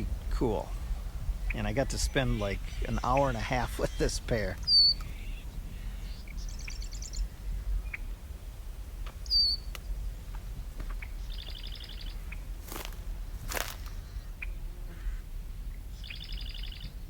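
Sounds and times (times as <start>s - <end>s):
steady low rumble: 0.0s - 16.2s
bird trills: 1.4s - 8.2s, 9.2s - 9.7s, 10.9s - 12.5s, 16.0s - 17.0s
high whistled bird call: 2.7s - 5.4s.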